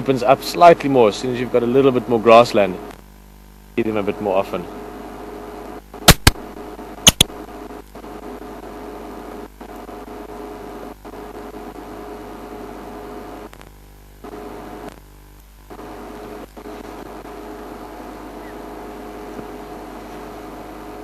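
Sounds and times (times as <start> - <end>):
two-tone mechanical hum: 0.0 - 21.0
sharp loud clicks: 6.0 - 6.5, 7.1 - 7.4.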